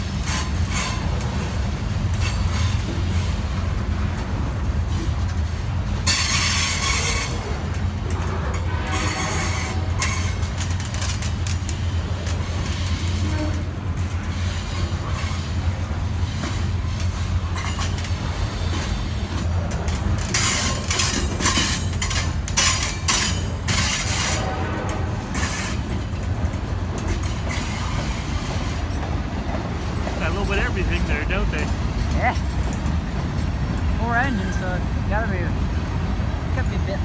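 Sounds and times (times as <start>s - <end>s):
steel wheels rumbling on rail: 0.0s - 37.0s
sharp clicks and clanks: 9.9s - 12.8s, 16.4s - 33.0s.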